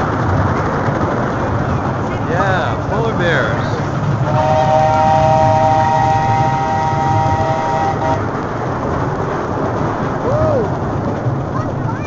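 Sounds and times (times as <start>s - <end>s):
train rumbling: 0.0s - 12.0s
steam train whistle: 4.3s - 8.2s.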